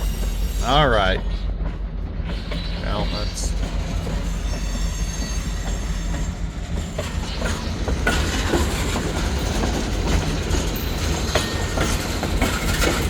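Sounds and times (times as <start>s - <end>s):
freight train rumbling: 0.0s - 13.0s
wheels clacking over rail joints: 0.0s - 13.0s.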